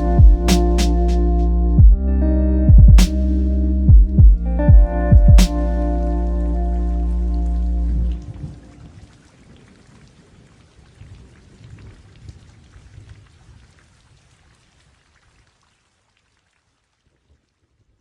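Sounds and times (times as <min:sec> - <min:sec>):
music: 0:00.0 - 0:08.4
rain: 0:06.0 - 0:18.0.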